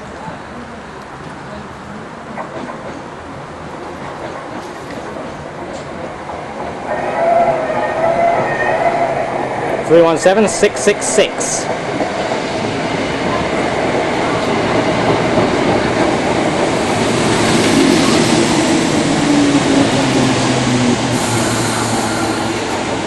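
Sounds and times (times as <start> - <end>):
train low whine: 0.0 - 23.0
train wheels rumbling on rail: 0.0 - 23.0.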